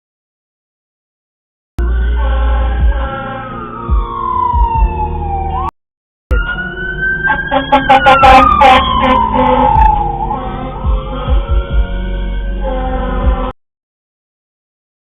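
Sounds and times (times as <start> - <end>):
emergency siren wailing: 1.8 - 13.5.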